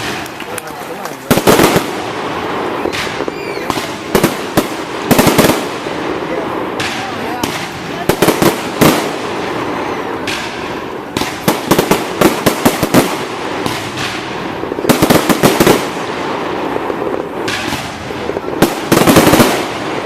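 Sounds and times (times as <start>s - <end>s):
background crowd hiss: 0.0s - 20.0s
fireworks bangs and crackles: 0.0s - 20.0s.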